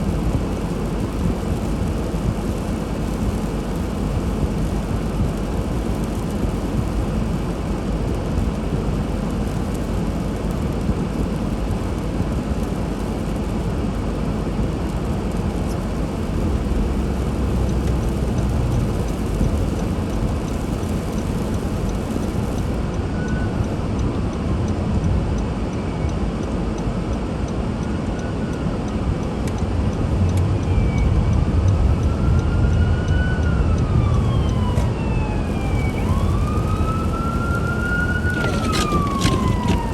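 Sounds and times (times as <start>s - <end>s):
car road and engine noise: 0.0s - 39.9s
emergency siren wailing: 32.1s - 39.9s.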